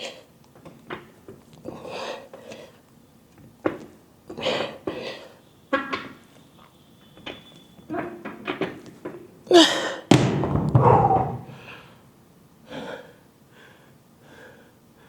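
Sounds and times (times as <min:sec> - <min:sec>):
dumbbell heavy thud: 0:10.1 - 0:11.8.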